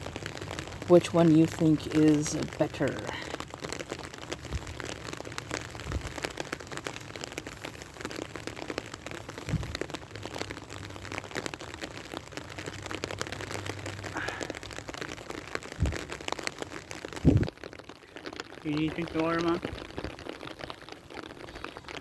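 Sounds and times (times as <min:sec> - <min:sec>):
rain patter: 0:00.0 - 0:22.0
low thumps: 0:09.5 - 0:09.8, 0:15.8 - 0:16.2, 0:17.2 - 0:17.6.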